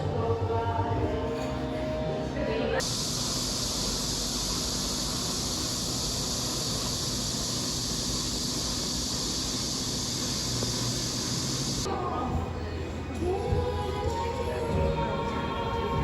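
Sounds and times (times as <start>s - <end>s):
steady hiss: 2.8s - 11.9s.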